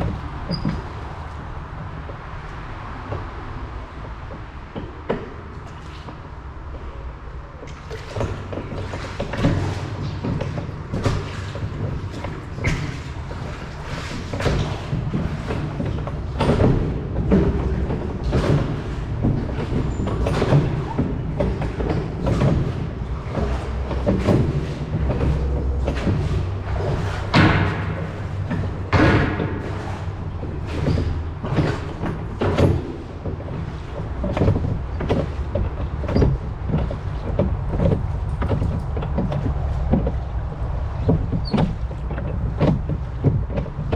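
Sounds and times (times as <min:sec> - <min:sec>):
oars splashing and knocking: 0:00.0 - 0:43.9
wind rumble on microphone: 0:00.0 - 0:43.9.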